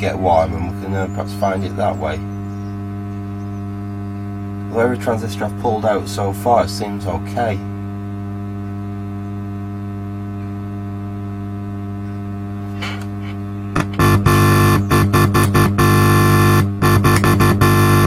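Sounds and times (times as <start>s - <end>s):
mains hum through speaker: 0.0s - 18.0s
loud music through amplifier: 13.8s - 18.0s.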